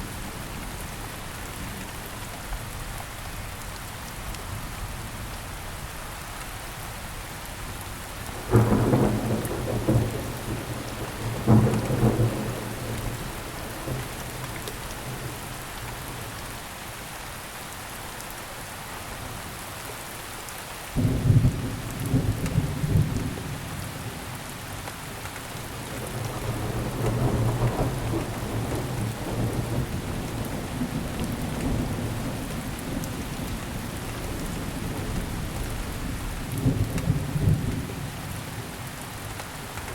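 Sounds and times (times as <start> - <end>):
steady rain falling: 0.0 - 39.9
thunder claps and rumble: 8.3 - 16.4, 21.0 - 24.2, 25.7 - 38.8.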